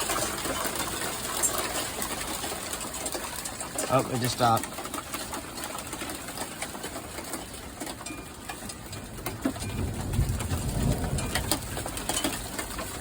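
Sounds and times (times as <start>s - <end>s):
raindrops tapping: 0.0s - 13.0s
low rumble of thunder: 9.1s - 13.0s.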